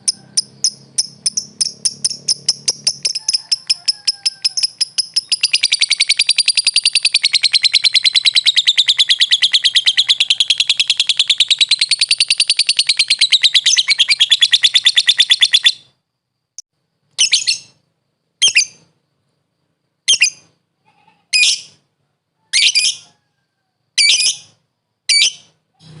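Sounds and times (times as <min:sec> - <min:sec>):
lovebird rattling trill: 0:00.0 - 0:15.8
lovebird short chirps: 0:00.4 - 0:15.8.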